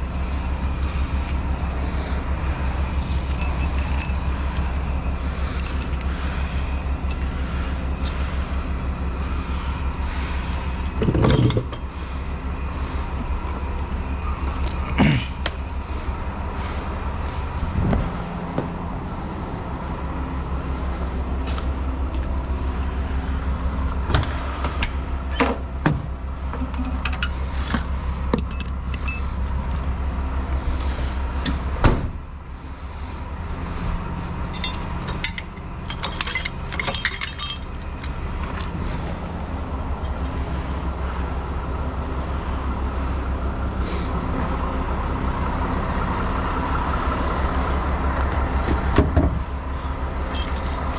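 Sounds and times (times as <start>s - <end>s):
truck engine droning: 0.0s - 50.9s
metallic clinks and rattles: 2.9s - 6.1s, 28.3s - 29.4s, 34.4s - 38.7s, 50.3s - 50.9s.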